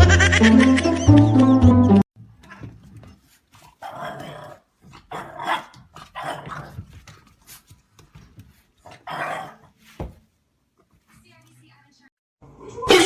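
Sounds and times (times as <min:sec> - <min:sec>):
dog barking in rough bursts: 0:05.1 - 0:06.8.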